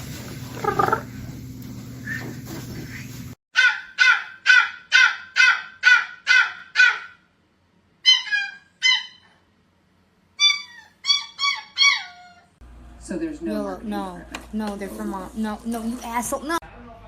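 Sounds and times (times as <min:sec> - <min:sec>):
animal calls falling in pitch: 0:00.6 - 0:01.1.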